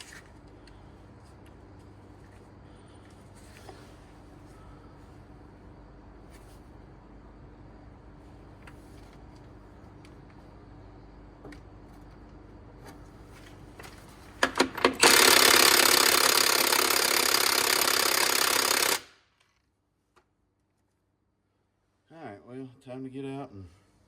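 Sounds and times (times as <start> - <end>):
impact wrench hammering: 14.4 - 19.1.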